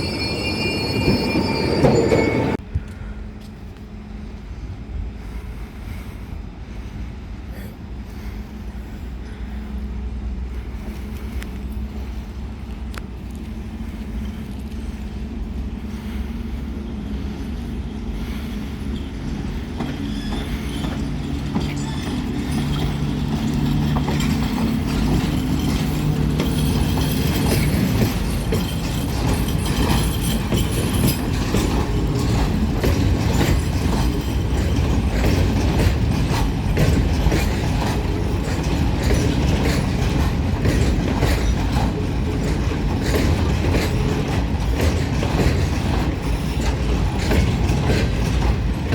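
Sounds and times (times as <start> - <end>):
rumble of train cars: 0.0 - 48.9
wheels clattering over rail joints: 13.2 - 48.9.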